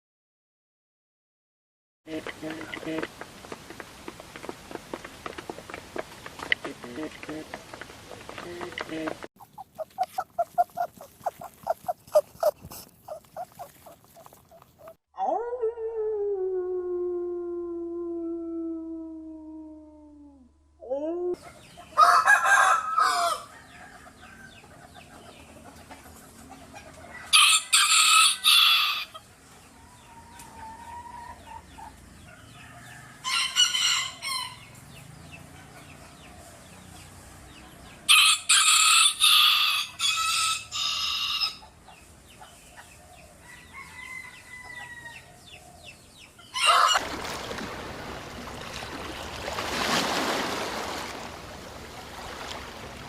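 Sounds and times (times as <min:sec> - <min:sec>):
clucking: 0:02.1 - 0:03.1, 0:06.4 - 0:15.0
rooster crowing: 0:22.0 - 0:24.5, 0:27.2 - 0:29.2, 0:32.6 - 0:34.6, 0:38.1 - 0:41.6, 0:43.4 - 0:45.4, 0:46.5 - 0:47.0.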